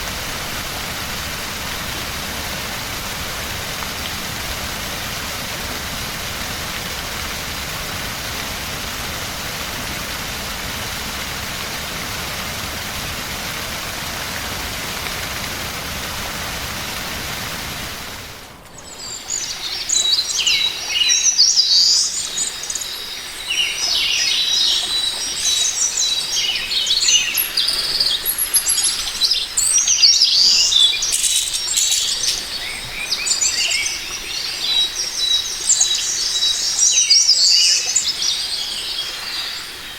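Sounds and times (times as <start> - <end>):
water rushing: 0.0 - 39.9
songbirds singing and chirping: 18.7 - 39.9.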